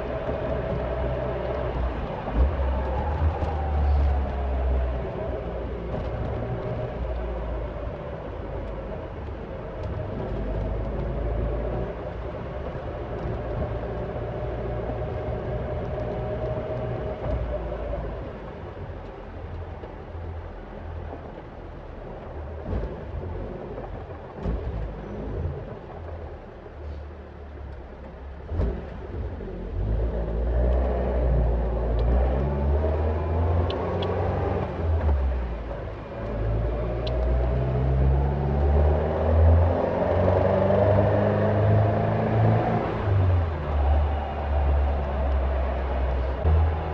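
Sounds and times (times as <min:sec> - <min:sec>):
car engine deep low note: 0:00.0 - 0:46.9.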